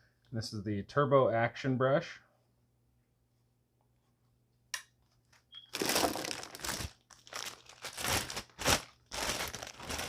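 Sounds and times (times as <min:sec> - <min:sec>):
plastic packaging crinkling: 0:05.6 - 0:10.0.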